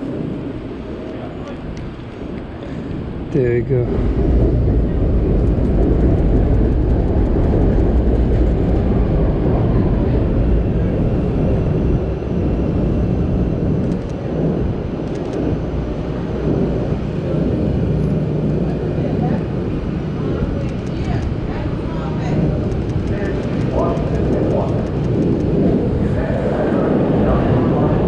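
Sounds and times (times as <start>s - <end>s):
elevated train rumbling past: 0.0s - 28.0s
faint rapid ticks: 22.7s - 25.6s.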